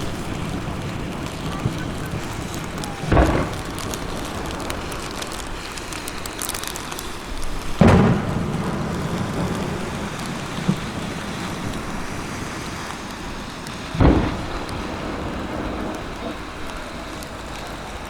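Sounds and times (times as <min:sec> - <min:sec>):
fireworks pop: 0:00.0 - 0:17.8
fireworks bursting with deep booms: 0:00.0 - 0:18.0
rushing crackling noise: 0:00.0 - 0:18.0.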